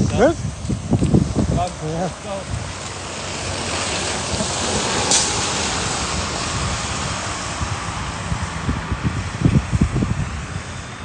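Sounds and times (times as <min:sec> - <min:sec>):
wind buffeting microphone: 0:00.0 - 0:11.0
vehicle passing by: 0:01.9 - 0:11.0.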